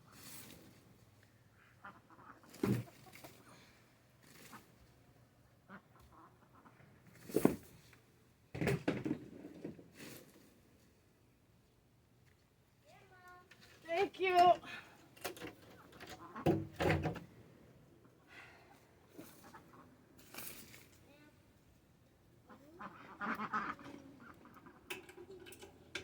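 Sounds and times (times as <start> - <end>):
ducks quacking: 22.5 - 24.9.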